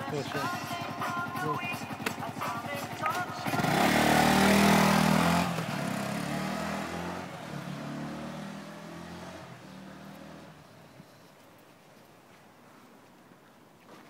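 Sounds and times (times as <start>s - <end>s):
motorcycle engine moving away: 1.7s - 11.5s.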